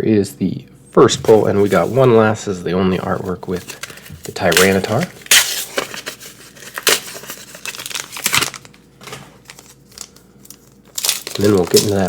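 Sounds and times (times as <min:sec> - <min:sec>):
foil wrapper crinkling and tearing: 0:03.0 - 0:12.0.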